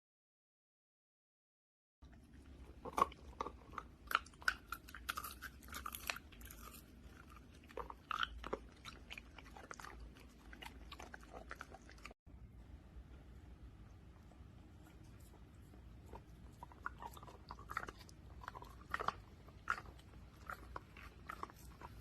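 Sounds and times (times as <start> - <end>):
dog chewing hard treat: 2.3 - 12.2, 15.9 - 22.0.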